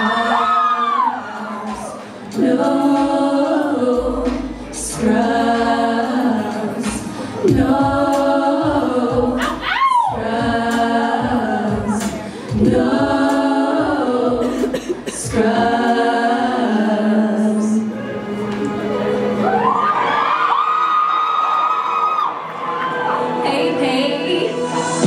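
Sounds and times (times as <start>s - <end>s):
women singing a cappella: 0.0s - 18.0s.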